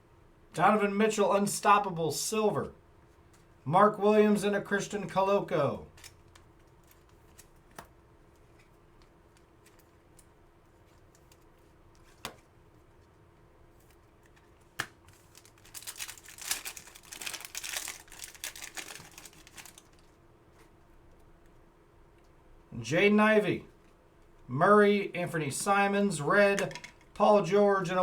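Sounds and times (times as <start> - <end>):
foil wrapper tearing and crinkling: 15.1 - 20.1.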